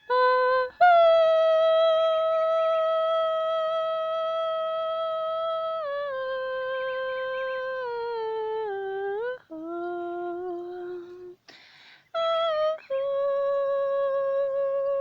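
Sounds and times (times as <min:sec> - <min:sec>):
woman humming: 0:00.0 - 0:11.5
breathy hiss: 0:11.4 - 0:12.2.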